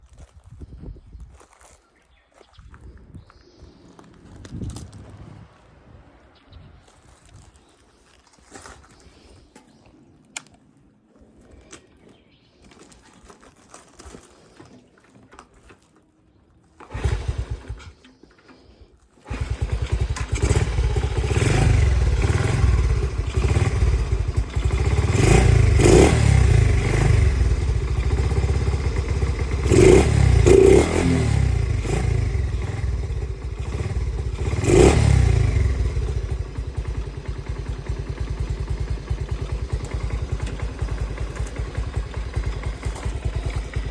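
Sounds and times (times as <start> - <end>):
small engine starting and idling: 16.6 - 43.9
engine revving: 16.8 - 17.9, 19.3 - 37.4.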